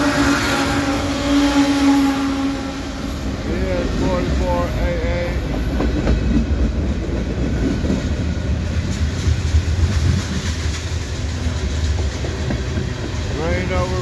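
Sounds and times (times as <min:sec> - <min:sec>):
freight train rumbling: 0:00.0 - 0:14.0
wheels clicking over rail joints: 0:03.2 - 0:14.0.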